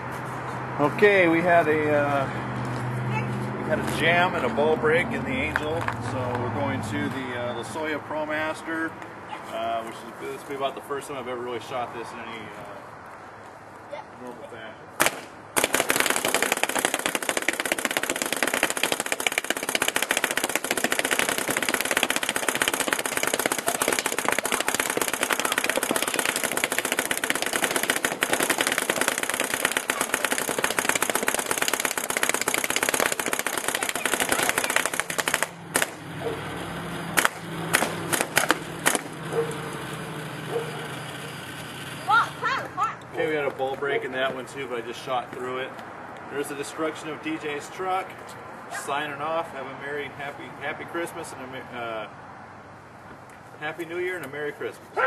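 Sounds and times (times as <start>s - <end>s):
paintball marker firing shots: 15.0s - 36.0s, 37.2s - 39.2s.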